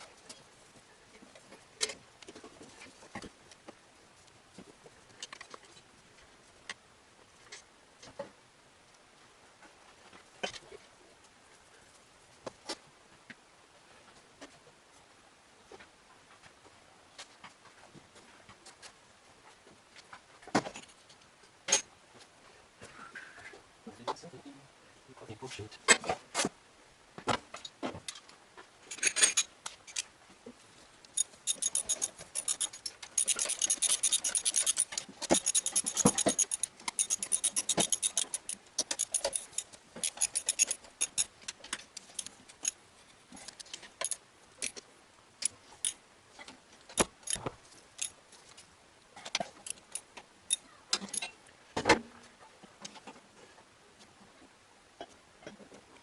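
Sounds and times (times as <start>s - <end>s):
metal tools clinking: 31.2s - 41.3s, 42.0s - 42.8s, 43.4s - 44.8s, 47.0s - 48.2s, 49.6s - 51.3s.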